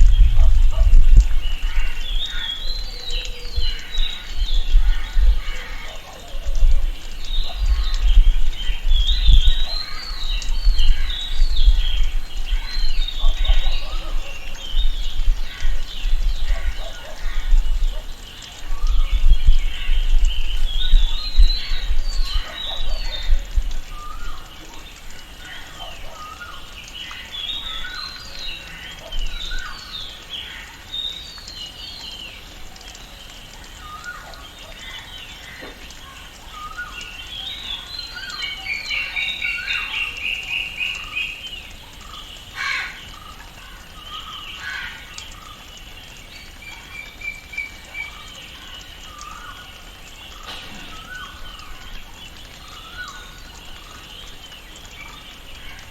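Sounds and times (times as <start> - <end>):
birds chirping and whistling: 49.0 - 55.8.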